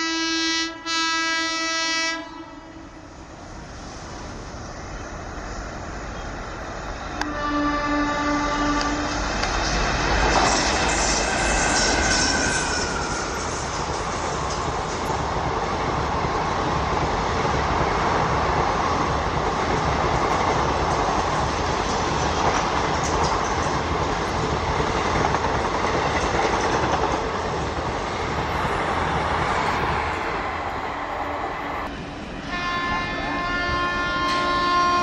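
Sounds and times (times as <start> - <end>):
train wheels rumbling on rails: 3.0 - 35.0
clickety-clack over rail joints: 8.6 - 11.2, 13.4 - 30.1.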